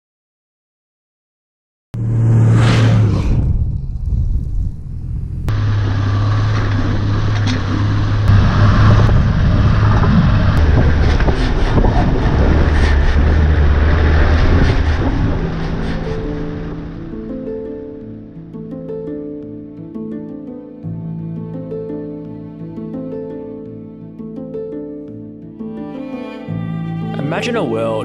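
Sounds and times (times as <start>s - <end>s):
brief rushing sound: 2.0s - 18.0s
vehicle engine droning: 2.0s - 18.6s.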